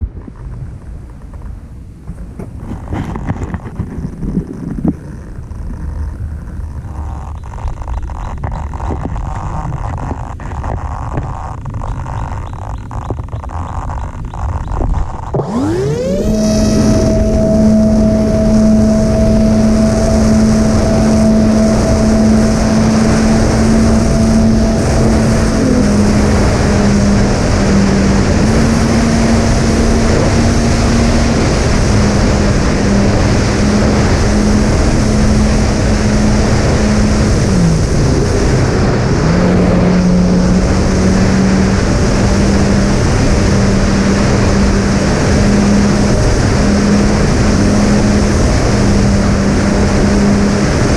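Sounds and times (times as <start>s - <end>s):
wind noise: 0.0s - 50.9s
drone motors whining: 2.1s - 50.9s.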